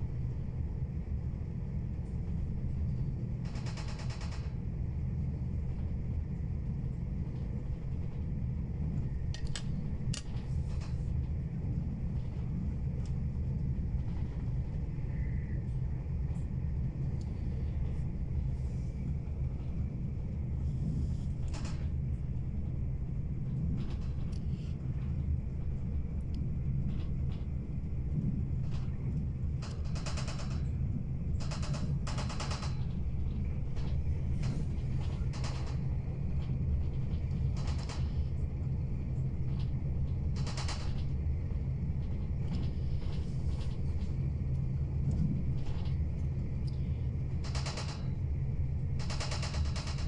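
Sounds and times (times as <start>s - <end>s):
train rumbling inside carriage: 0.0s - 50.0s.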